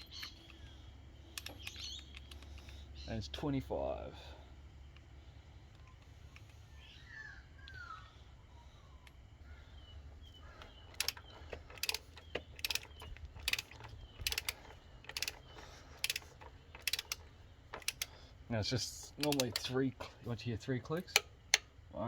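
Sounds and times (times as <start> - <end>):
ratchet wrench clicking: 0.0 - 0.6, 1.3 - 2.8, 10.6 - 18.2, 19.0 - 19.8.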